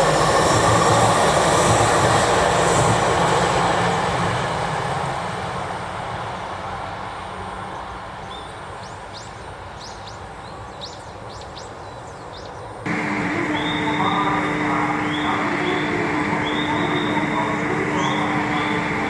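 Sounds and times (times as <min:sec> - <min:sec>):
high whine: 0:12.9 - 0:19.0
train hum: 0:12.9 - 0:19.0
train rumble: 0:12.9 - 0:19.0.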